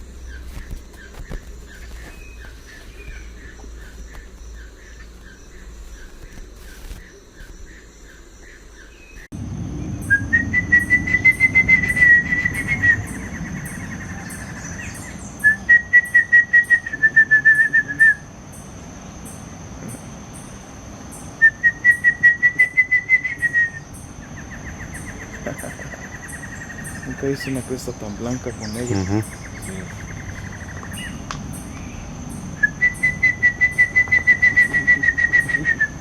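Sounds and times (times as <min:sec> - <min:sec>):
high insect drone: 0:00.0 - 0:36.0
barbet calling in pulsed notes: 0:09.9 - 0:18.3, 0:21.2 - 0:36.0.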